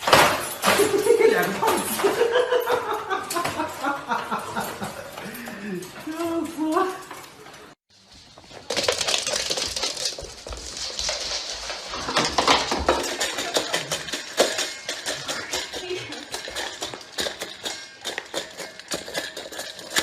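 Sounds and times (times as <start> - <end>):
small hard objects clattering: 8.4 - 20.0.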